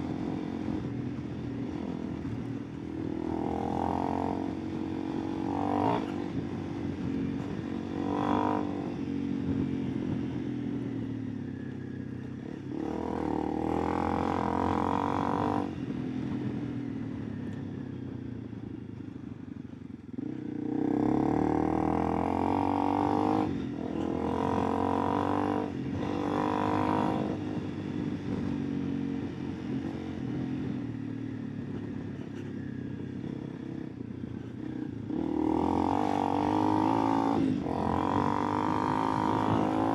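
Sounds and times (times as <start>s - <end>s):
motorcycle engine revving: 33.6s - 39.9s.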